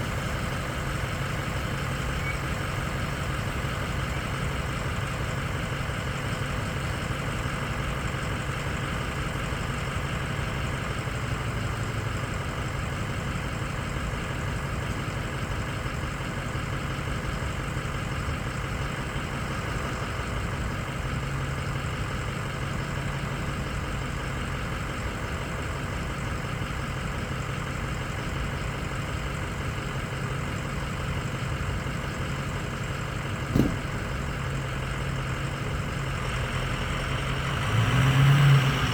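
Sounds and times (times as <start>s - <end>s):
vehicle engine idling: 0.0s - 38.9s
short thump: 33.5s - 34.3s.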